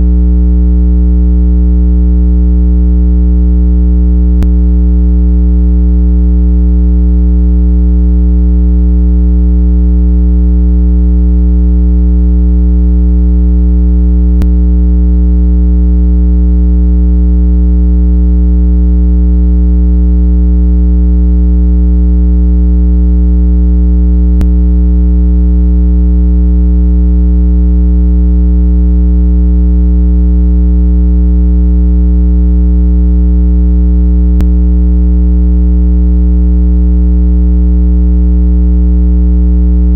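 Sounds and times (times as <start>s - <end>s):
loud steady low hum tone: 0.0s - 1.3s, 4.2s - 10.3s, 14.0s - 16.2s, 24.2s - 24.7s, 34.3s - 34.5s.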